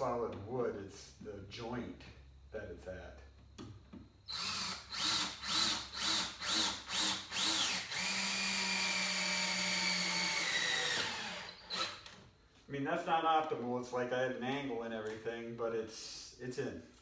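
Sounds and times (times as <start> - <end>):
power drill driving a screw: 4.3 - 12.2.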